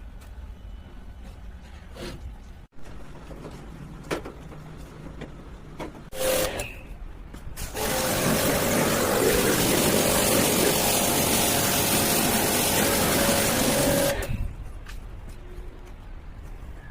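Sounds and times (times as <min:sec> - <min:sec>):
pressure washer motor hum: 0:06.1 - 0:06.6, 0:07.6 - 0:14.4
water jet spraying hiss: 0:07.7 - 0:14.3.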